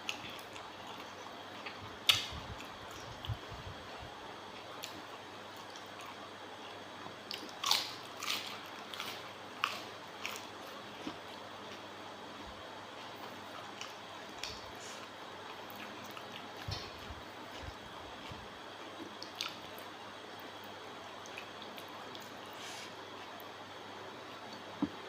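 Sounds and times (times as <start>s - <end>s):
wet chewing crunches: 7.3s - 19.9s.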